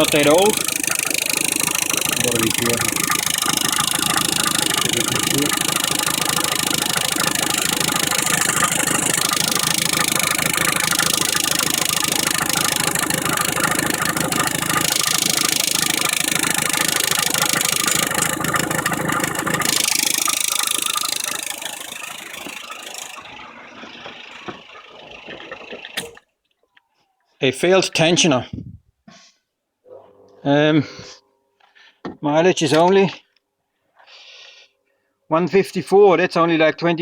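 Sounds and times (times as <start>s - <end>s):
car engine idling: 0.0s - 26.2s
fast steady engine rattle: 0.0s - 26.2s.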